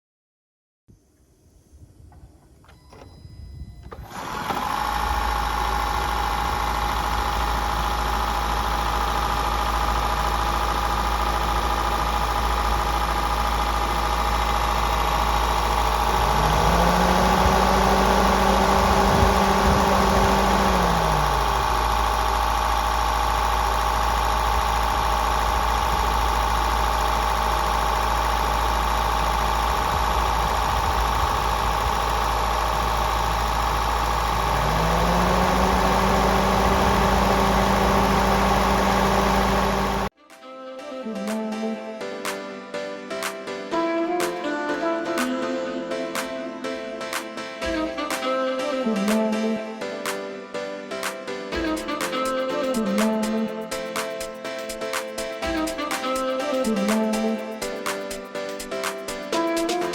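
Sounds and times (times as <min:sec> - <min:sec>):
rising second engine tone: 0:00.9 - 0:40.1
petrol engine running: 0:02.1 - 0:40.1, 0:51.0 - 0:59.9.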